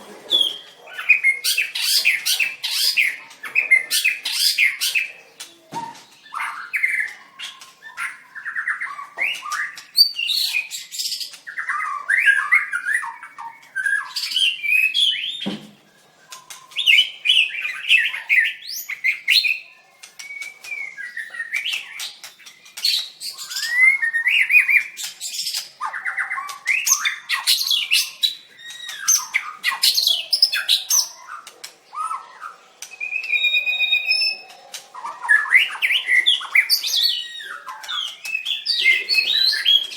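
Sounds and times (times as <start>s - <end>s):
bird singing whistled phrases: 11.5s - 39.9s.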